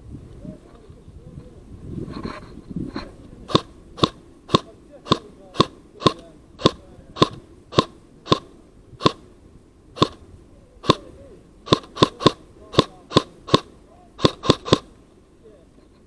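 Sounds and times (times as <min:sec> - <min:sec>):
airsoft gun shots: 0:03.5 - 0:09.3, 0:10.0 - 0:10.2, 0:10.8 - 0:11.1, 0:11.7 - 0:15.0.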